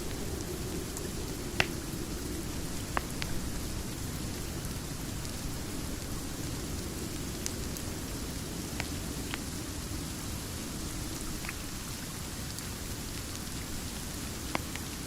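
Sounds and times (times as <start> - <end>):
rain hissing: 0.0 - 15.0
fire pops: 1.3 - 3.4.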